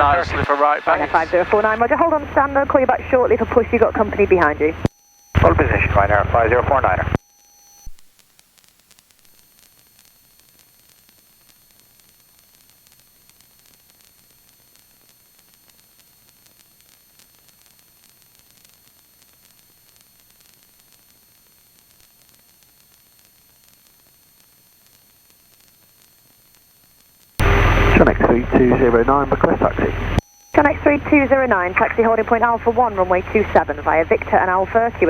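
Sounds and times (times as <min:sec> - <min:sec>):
high-pitched whines: 0:00.0 - 0:08.0, 0:27.4 - 0:35.0
radio static hiss: 0:00.0 - 0:35.0.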